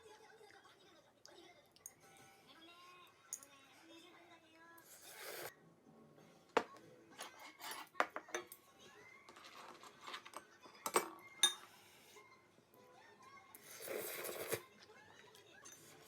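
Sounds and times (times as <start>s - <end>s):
dishes and utensils clinking: 6.6s - 12.2s, 15.5s - 16.0s.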